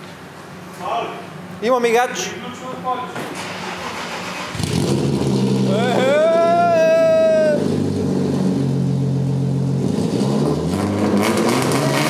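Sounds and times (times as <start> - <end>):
drawn-out shout: 5.7 - 7.8.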